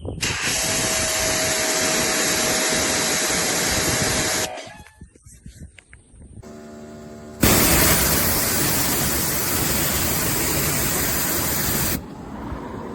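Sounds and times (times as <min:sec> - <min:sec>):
pressure washer water jet hissing: 0:07.3 - 0:12.1.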